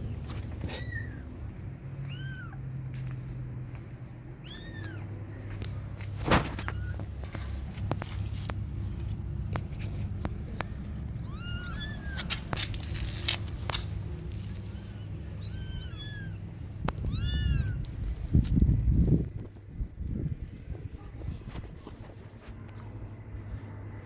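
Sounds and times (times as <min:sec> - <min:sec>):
low steady rumble: 0:00.0 - 0:24.0
kittens mewing: 0:00.6 - 0:02.9, 0:04.3 - 0:05.2, 0:10.9 - 0:13.4, 0:14.4 - 0:17.9.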